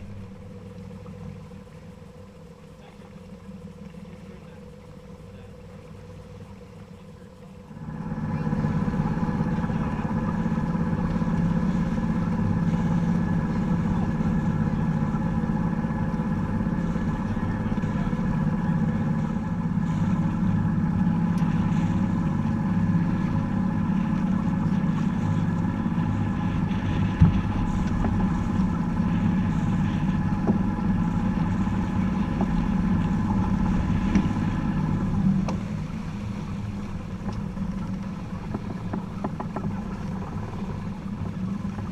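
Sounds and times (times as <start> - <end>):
boat engine humming with whine: 0.0 - 41.9.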